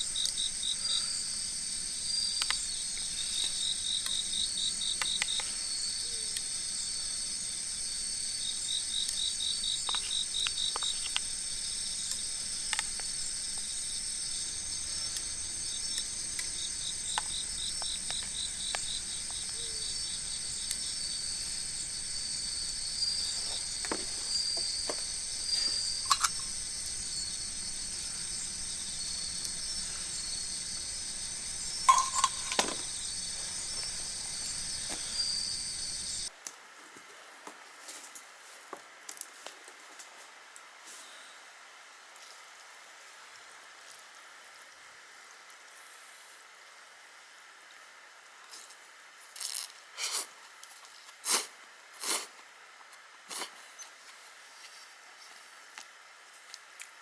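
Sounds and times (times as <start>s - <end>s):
high-pitched insect hum: 0.0s - 36.3s
insect chirping trills: 0.0s - 36.3s
campfire crackles: 0.0s - 36.6s.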